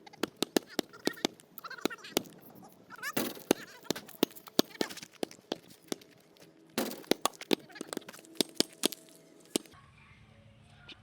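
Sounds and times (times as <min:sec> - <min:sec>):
basketball bouncing: 0:00.0 - 0:06.2, 0:06.8 - 0:09.7.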